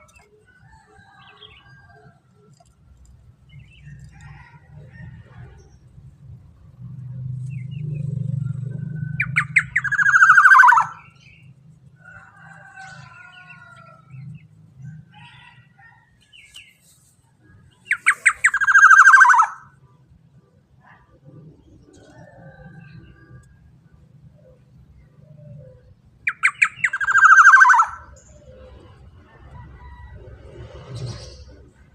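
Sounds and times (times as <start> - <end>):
oriole harsh calls: 8.4 - 11.2, 17.9 - 19.8, 26.2 - 28.2
soft bird chirps: 16.3 - 19.6, 25.5 - 28.8.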